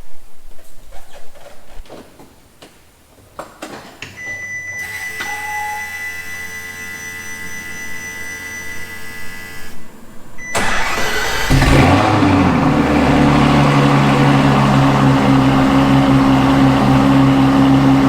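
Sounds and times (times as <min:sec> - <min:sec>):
electric systems high whine: 0:04.8 - 0:18.0
car engine starting: 0:09.6 - 0:18.0.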